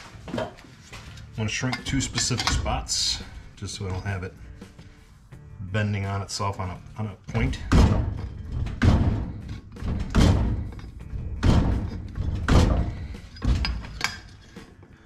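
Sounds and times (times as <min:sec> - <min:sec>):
metal shrinker clunking on steel: 0:07.4 - 0:14.4.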